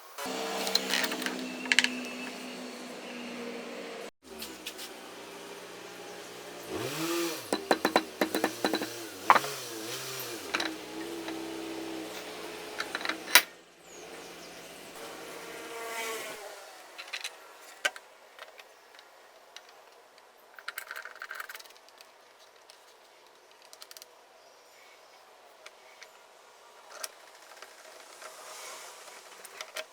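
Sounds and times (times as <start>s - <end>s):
electric drill motor running: 0.2s - 13.5s
tools rattling: 0.5s - 2.6s, 6.8s - 13.6s, 20.6s - 22.1s.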